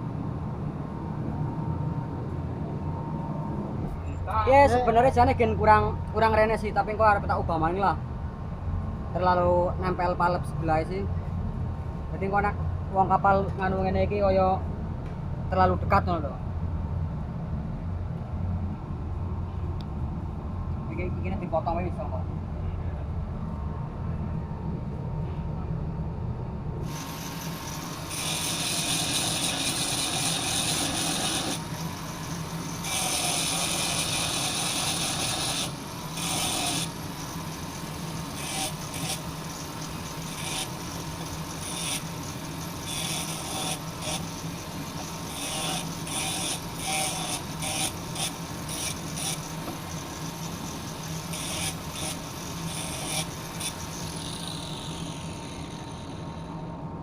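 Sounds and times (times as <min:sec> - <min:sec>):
machinery hum: 0:00.0 - 0:57.0
tool rasping through metal pipe: 0:26.9 - 0:56.3.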